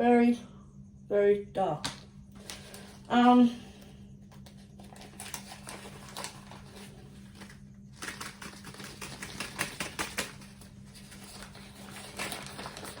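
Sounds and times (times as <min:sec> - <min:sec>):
steady low hum: 0:00.0 - 0:13.0
plastic packaging rustling: 0:02.3 - 0:03.1, 0:04.3 - 0:13.0.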